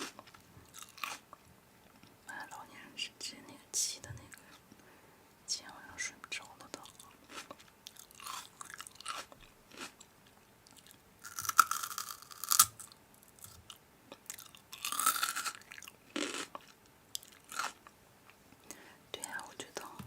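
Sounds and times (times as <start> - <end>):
person chewing crunchy food: 0.0 - 1.3, 6.8 - 17.9.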